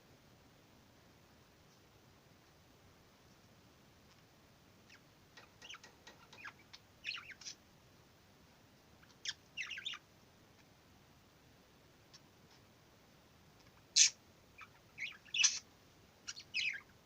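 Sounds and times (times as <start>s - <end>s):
budgerigar chattering: 13.9s - 15.7s.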